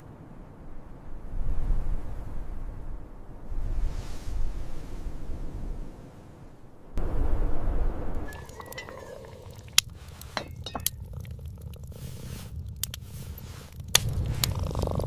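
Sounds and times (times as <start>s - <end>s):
low steady rumble: 5.1s - 15.0s
sharp light clicks and clinks: 9.8s - 11.4s.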